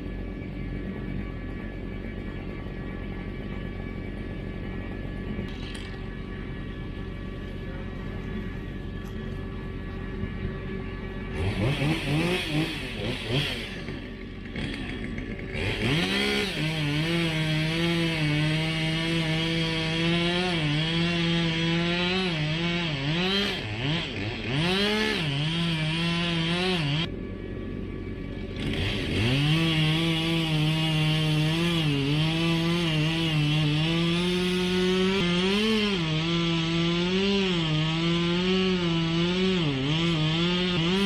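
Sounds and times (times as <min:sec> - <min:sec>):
chainsaw cutting wood: 0:11.2 - 0:27.1, 0:28.3 - 0:41.0.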